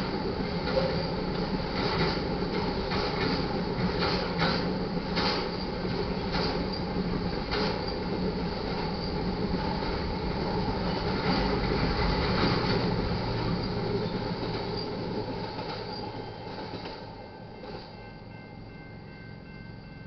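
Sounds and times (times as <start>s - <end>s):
train wheels rumbling on rail: 0.0s - 20.0s
train wheel knock: 0.5s - 9.1s.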